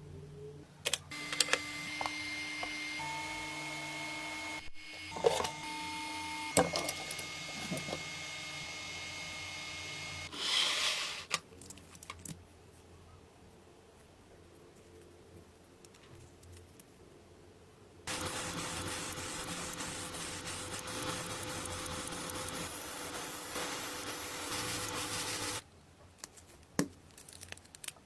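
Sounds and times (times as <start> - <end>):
small electric motor whining: 1.1 - 10.6, 18.1 - 25.6.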